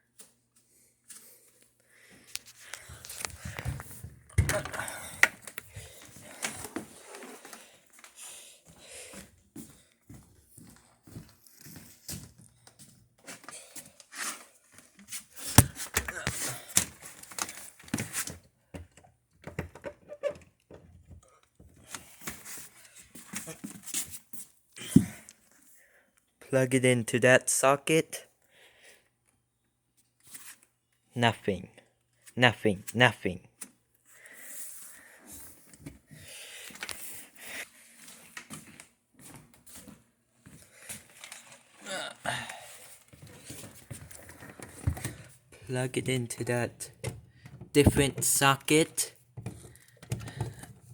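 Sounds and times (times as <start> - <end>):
handling clicks and knocks: 46.0 - 50.9
clicks and knocks handling a fan: 49.4 - 50.9.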